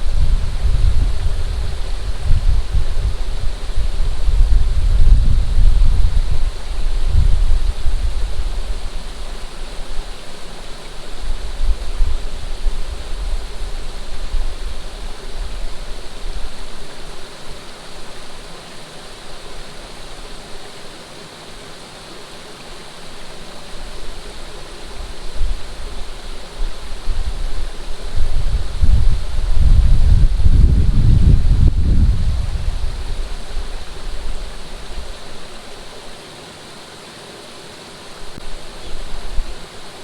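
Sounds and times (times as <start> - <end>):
wind buffeting microphone: 0.0 - 10.2, 11.1 - 16.9, 24.2 - 35.7
water rushing: 0.0 - 40.0.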